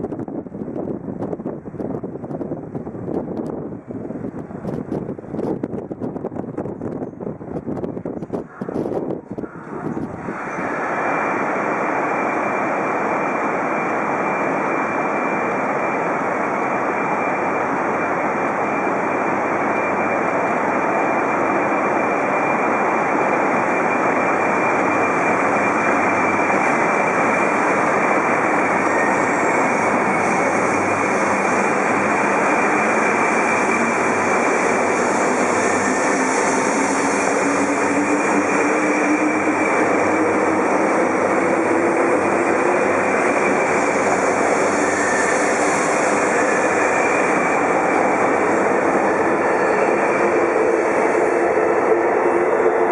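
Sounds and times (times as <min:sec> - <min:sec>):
high-speed train rushing past: 0:00.0 - 0:52.9.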